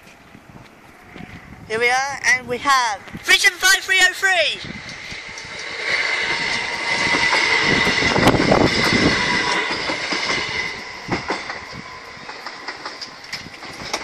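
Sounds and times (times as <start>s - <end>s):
train high whine: 0.0s - 14.0s
train wheel rumble: 0.0s - 14.0s
wheels clacking over rail joints: 4.6s - 14.0s.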